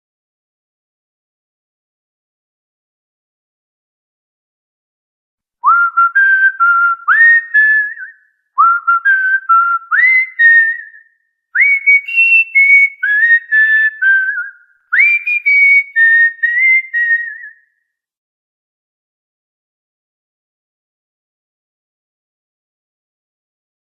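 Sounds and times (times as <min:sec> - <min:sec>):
cockatiel whistling a tune: 0:05.6 - 0:11.0, 0:11.6 - 0:17.6.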